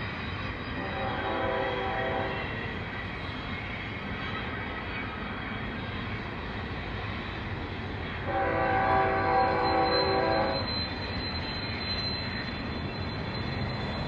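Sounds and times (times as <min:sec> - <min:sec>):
passing train rumble: 0:00.0 - 0:14.0
chord-like train horn: 0:00.8 - 0:02.5, 0:08.2 - 0:10.6.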